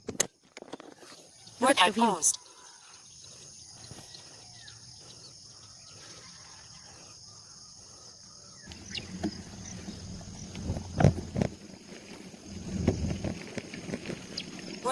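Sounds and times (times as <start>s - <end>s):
insects chorus: 0.7s - 14.9s
low rumble: 8.7s - 13.8s.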